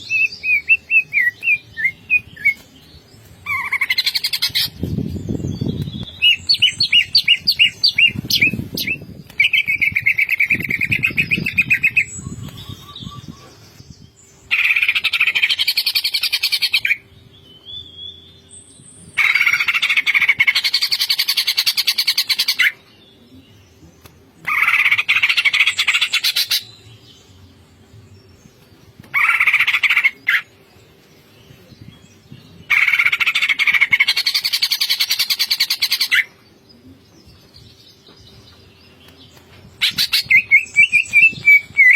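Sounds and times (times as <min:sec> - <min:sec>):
bird chattering trills: 0:32.7 - 0:36.3.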